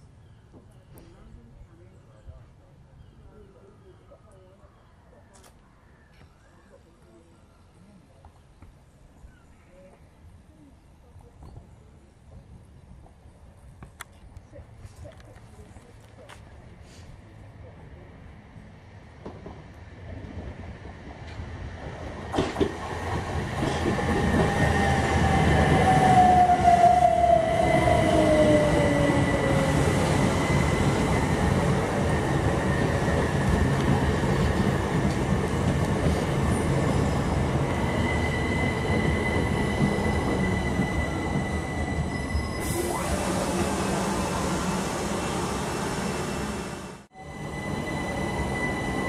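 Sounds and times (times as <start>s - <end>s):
train wheels rumbling on rail: 19.2s - 49.0s
steady high squeal: 36.5s - 49.0s.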